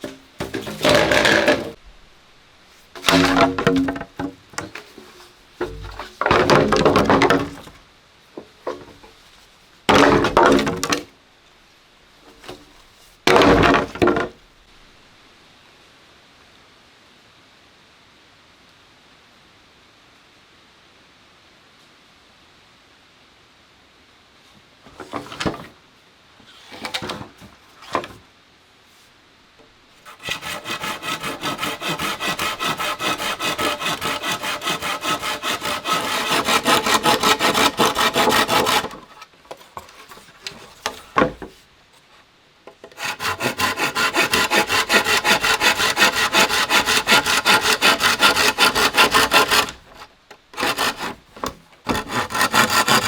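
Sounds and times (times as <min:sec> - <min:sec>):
hand saw cutting wood: 0:00.0 - 0:01.8, 0:03.0 - 0:07.8, 0:09.9 - 0:11.0, 0:13.3 - 0:14.2, 0:30.0 - 0:39.2, 0:42.8 - 0:53.0.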